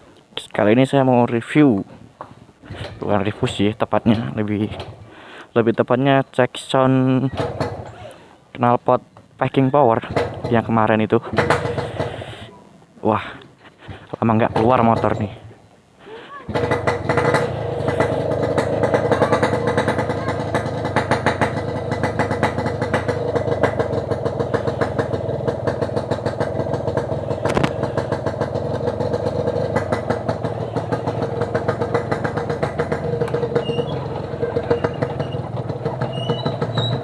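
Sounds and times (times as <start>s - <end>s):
motorcycle engine running: 7.3s - 8.0s, 10.0s - 10.8s, 11.4s - 12.4s, 14.5s - 15.2s, 16.5s - 37.0s.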